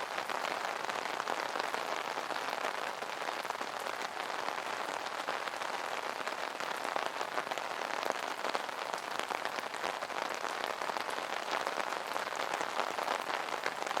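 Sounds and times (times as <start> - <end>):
rain pattering on an umbrella: 0.0 - 14.0.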